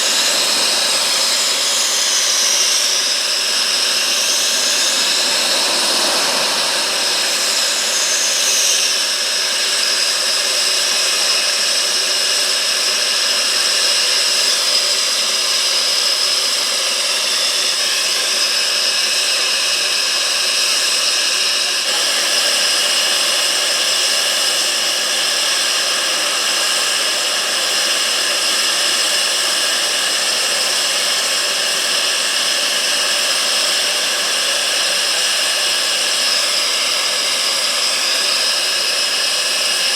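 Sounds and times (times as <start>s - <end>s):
jet engines whining: 0.0s - 11.8s, 21.9s - 39.9s.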